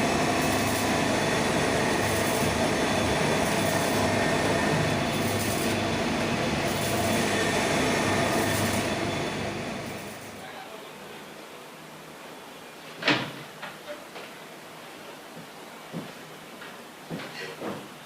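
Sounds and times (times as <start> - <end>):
machinery rumbling: 0.0 - 10.4.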